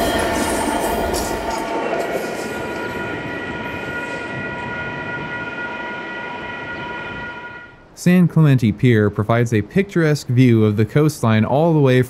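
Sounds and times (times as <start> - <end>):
high ringing tones: 0.0 - 7.9
train rumble: 0.0 - 8.2.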